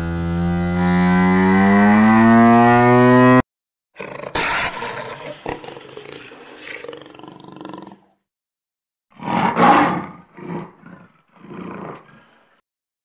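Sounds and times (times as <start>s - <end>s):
big cat growling: 4.0s - 8.2s, 9.2s - 12.6s.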